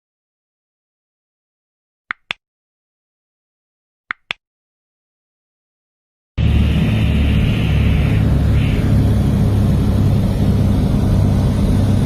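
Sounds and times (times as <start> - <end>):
aircraft engine noise: 6.4 - 12.0.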